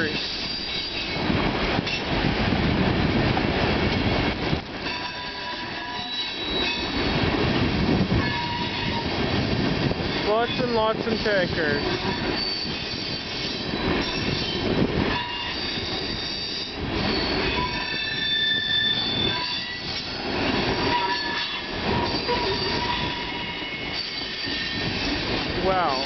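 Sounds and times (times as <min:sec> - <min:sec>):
train wheels rumbling: 0:00.0 - 0:26.0
high-pitched wheel squeal: 0:04.9 - 0:07.0, 0:10.5 - 0:20.0, 0:20.8 - 0:25.0.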